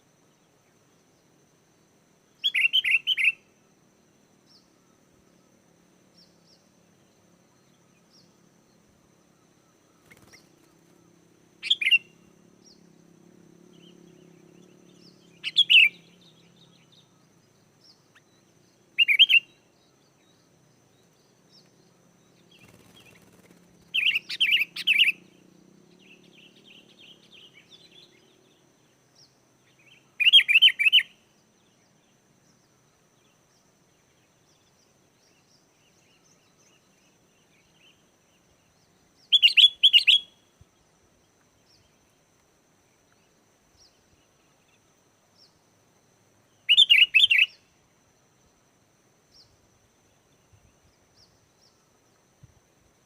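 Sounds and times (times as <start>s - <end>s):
bird singing short phrases: 2.4s - 3.5s, 11.6s - 12.9s, 13.7s - 20.4s, 21.0s - 32.0s, 34.5s - 40.5s, 46.5s - 47.7s.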